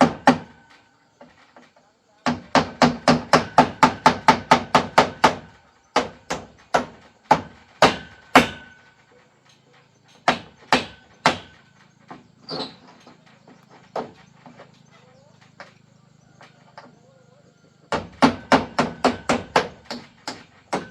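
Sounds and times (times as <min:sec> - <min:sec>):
hammer strikes: 0:00.0 - 0:00.6, 0:02.2 - 0:08.8, 0:10.2 - 0:11.6, 0:17.9 - 0:20.9.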